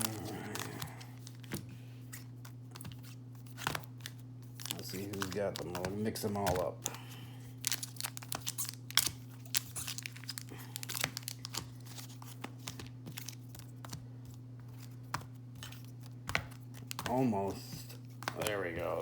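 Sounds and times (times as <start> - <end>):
wrappers crackling and rustling: 0.0 - 13.9.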